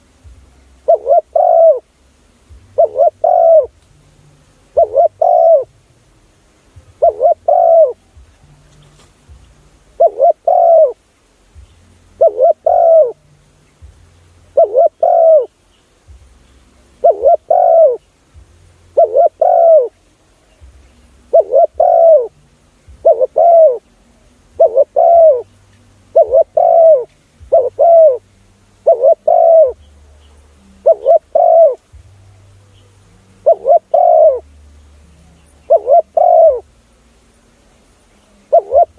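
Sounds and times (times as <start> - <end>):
dove cooing: 0.8 - 2.0, 2.6 - 3.8, 4.6 - 5.8, 6.8 - 8.9, 9.8 - 11.1, 11.8 - 13.3, 14.4 - 15.6, 16.4 - 36.8, 38.2 - 38.9.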